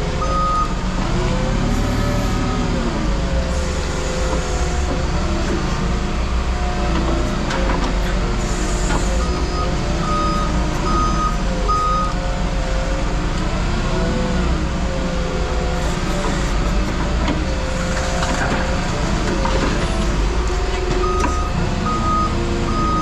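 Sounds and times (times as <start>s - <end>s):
heavy equipment engine revving: 0.0s - 23.0s
reversing alarm beeps: 0.2s - 0.8s, 8.6s - 12.2s, 17.6s - 23.0s.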